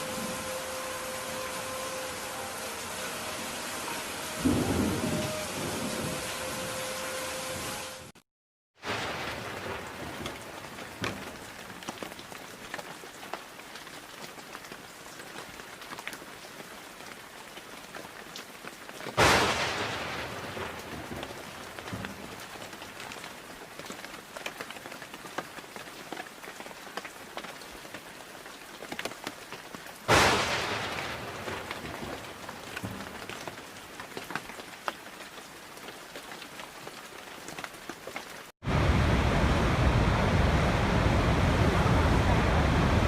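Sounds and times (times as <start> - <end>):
rain falling: 0.0 - 8.2, 8.8 - 43.0
loud thunder cracks: 4.4 - 6.2, 19.2 - 22.3, 30.1 - 33.2
raindrops ticking: 30.9 - 38.5.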